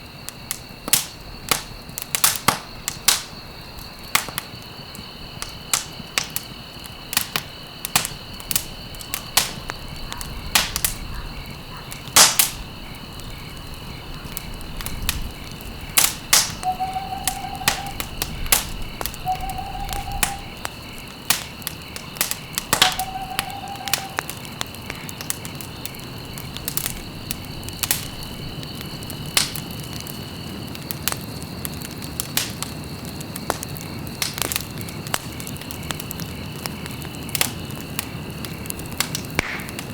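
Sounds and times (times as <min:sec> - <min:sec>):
campfire crackling and popping: 0:00.0 - 0:39.9
short calls: 0:16.4 - 0:20.7, 0:22.4 - 0:24.6
steady high-pitched drone: 0:16.6 - 0:18.0.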